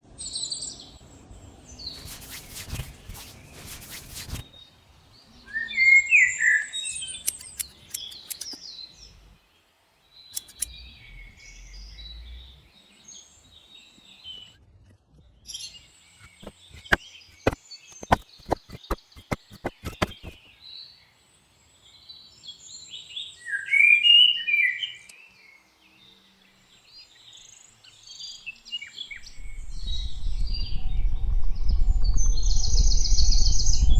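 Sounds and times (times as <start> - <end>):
sharp clicks: 7.2 - 8.6, 10.3 - 10.8, 16.3 - 20.4
rush of noise: 29.2 - 33.9.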